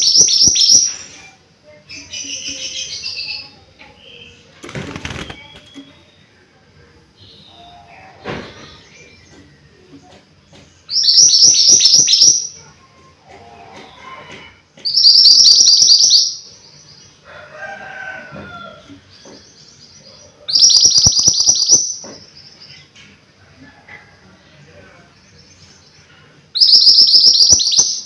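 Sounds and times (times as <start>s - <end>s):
songbird singing: 0.0s - 28.0s.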